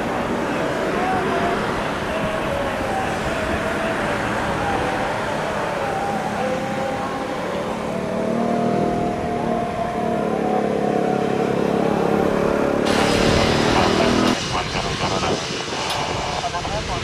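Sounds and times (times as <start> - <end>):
distant jet engine whine: 0.0 - 17.0
low loud hum: 11.9 - 17.0.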